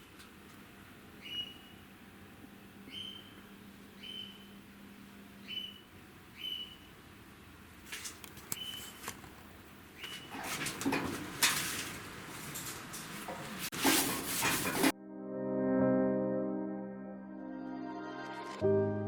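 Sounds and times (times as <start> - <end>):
bird whistling call: 1.2 - 1.8, 2.9 - 3.4, 4.0 - 4.6, 5.4 - 6.9.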